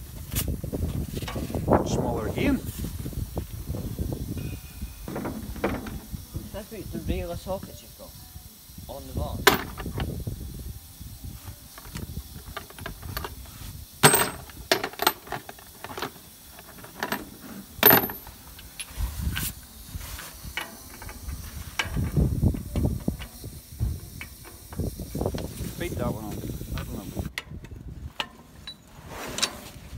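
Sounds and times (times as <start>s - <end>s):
hand tools clicking and clinking: 9.4s - 10.0s, 11.7s - 19.5s, 20.2s - 25.5s
loud metal clanks: 14.0s - 15.5s, 17.8s - 18.4s.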